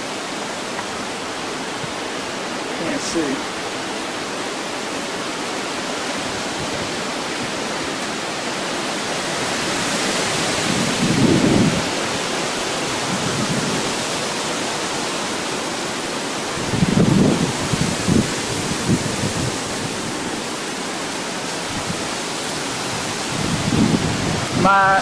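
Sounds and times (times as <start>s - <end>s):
heavy rain: 0.0s - 25.0s
wind gusts buffeting microphone: 5.2s - 25.0s.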